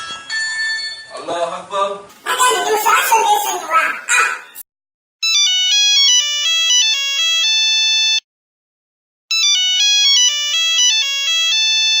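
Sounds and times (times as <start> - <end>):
mobile phone ringtone: 5.2 - 8.2, 9.3 - 12.0.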